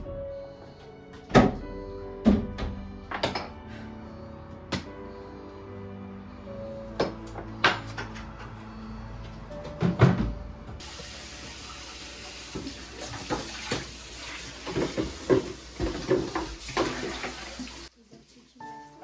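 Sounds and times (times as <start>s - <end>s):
tap running into sink: 10.8s - 17.9s
items clattering under water: 14.6s - 17.7s.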